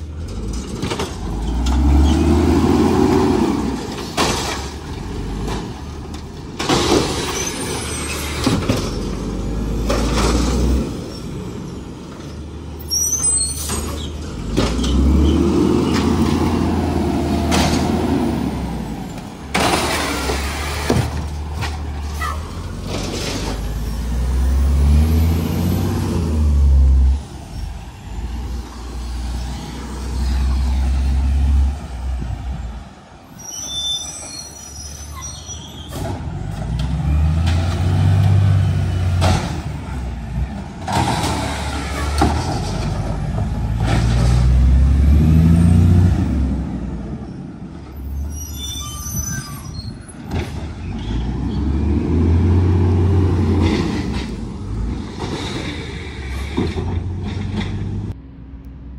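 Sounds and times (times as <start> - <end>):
diesel engine revving: 0.0 - 32.9, 35.9 - 48.2, 50.2 - 58.2
high brake squeal: 7.3 - 9.1, 12.8 - 14.2, 33.3 - 36.1, 48.0 - 50.2.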